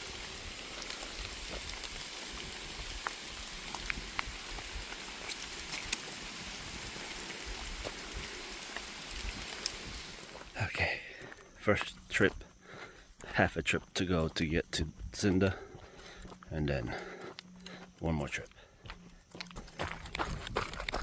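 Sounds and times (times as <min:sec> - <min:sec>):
rain falling on forest: 0:00.0 - 0:13.4
raindrops ticking: 0:00.0 - 0:18.6.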